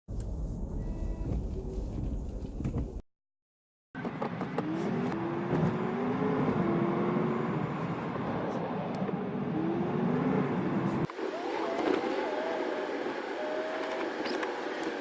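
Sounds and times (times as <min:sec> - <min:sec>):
car engines accelerating: 0:04.0 - 0:15.0.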